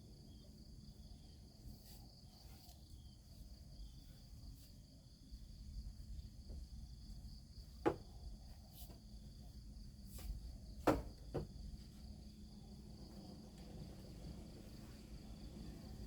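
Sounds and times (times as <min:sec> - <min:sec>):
crickets chirring: 0:11.5 - 0:16.0.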